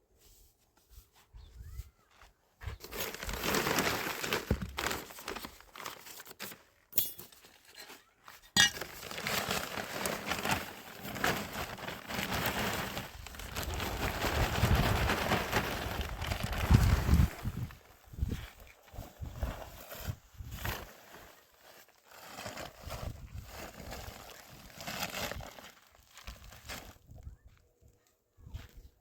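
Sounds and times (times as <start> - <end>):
hand tools clinking: 6.9 - 8.9.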